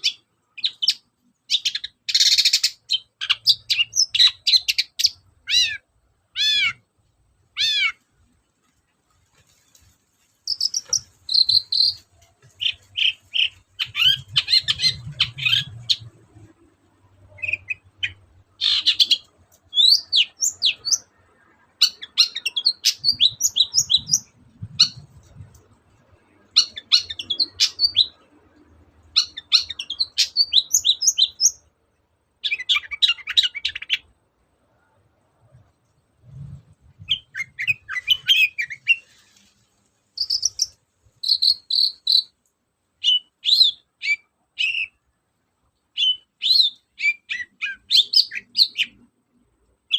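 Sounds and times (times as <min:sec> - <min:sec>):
bird chirps whistles and trills: 0:00.0 - 0:05.8, 0:10.4 - 0:16.1, 0:17.3 - 0:21.1, 0:21.8 - 0:25.1, 0:26.5 - 0:28.2, 0:29.2 - 0:31.6, 0:32.4 - 0:34.1, 0:36.3 - 0:39.0, 0:40.2 - 0:42.3, 0:43.0 - 0:45.0, 0:46.0 - 0:49.0.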